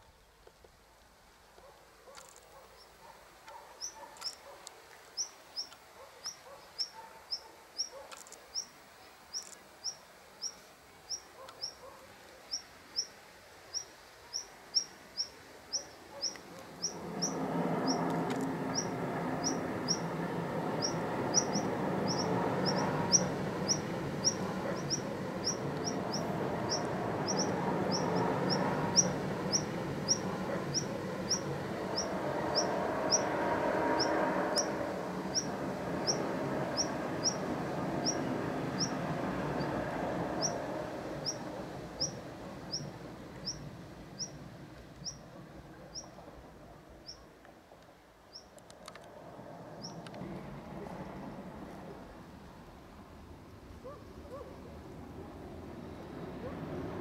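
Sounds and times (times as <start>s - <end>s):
steady noise with low hum: 12.1s - 57.0s.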